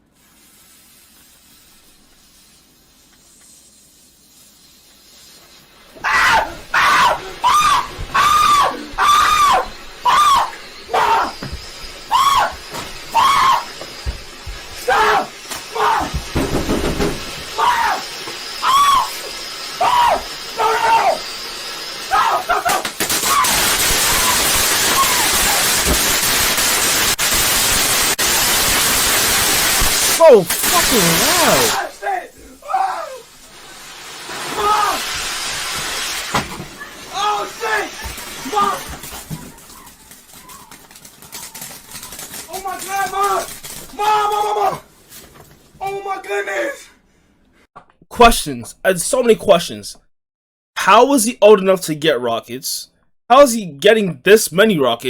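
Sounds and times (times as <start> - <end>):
firework hissing: 0.0 - 45.2
person screaming: 6.0 - 11.4, 12.1 - 13.7, 14.8 - 16.2, 17.5 - 18.0, 18.6 - 19.2, 19.8 - 21.2, 22.1 - 25.8, 30.2 - 33.3, 34.5 - 35.1, 37.1 - 39.0, 42.6 - 44.8.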